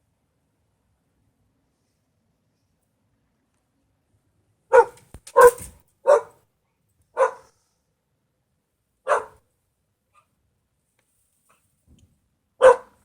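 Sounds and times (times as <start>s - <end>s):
dog barking: 4.7s - 6.4s, 7.1s - 7.6s, 9.0s - 9.4s, 12.6s - 13.0s.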